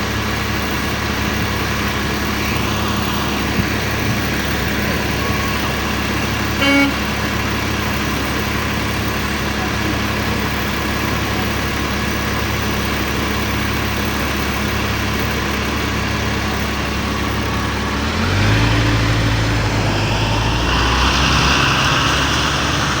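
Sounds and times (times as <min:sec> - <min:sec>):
bus engine from inside: 0:00.0 - 0:23.0.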